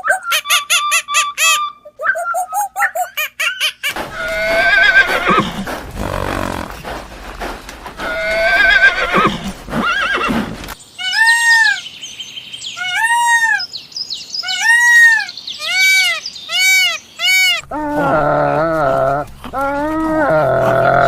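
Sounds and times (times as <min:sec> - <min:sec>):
short rising and falling animal calls: 0:03.9 - 0:10.6
warbling animal call: 0:03.9 - 0:11.6, 0:17.3 - 0:21.0.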